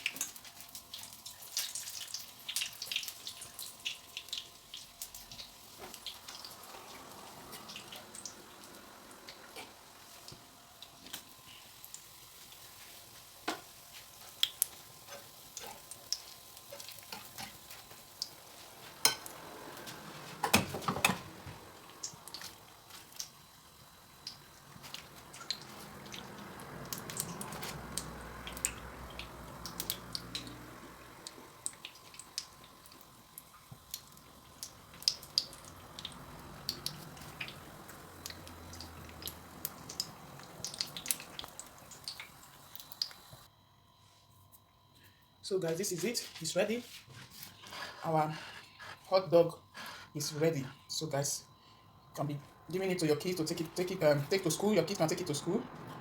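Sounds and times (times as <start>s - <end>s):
food sizzling in hot oil: 0.0s - 43.5s
oil popping and crackling: 0.0s - 43.5s.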